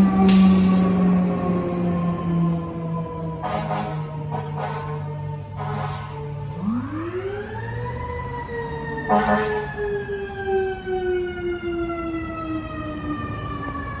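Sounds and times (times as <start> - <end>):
horn blast: 3.4 - 6.8, 9.1 - 9.8
mechanical siren winding down: 6.4 - 14.0.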